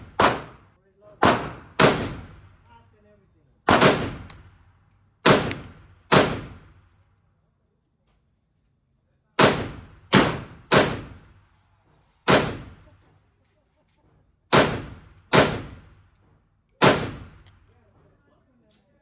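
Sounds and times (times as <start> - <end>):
echoing gunshots: 0.0 - 2.5, 3.7 - 4.6, 5.2 - 6.8, 9.4 - 11.4, 12.3 - 12.8, 14.5 - 15.9, 16.8 - 17.5.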